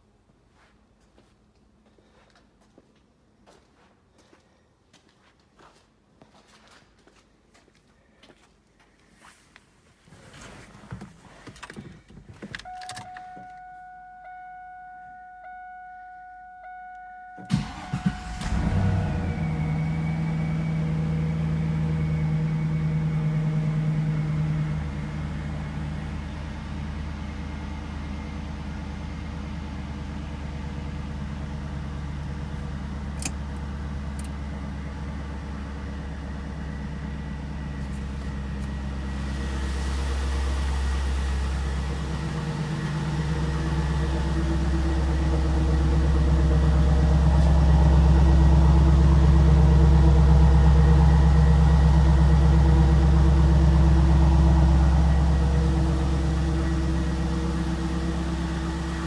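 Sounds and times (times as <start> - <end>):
car engine idling: 12.5 - 59.0.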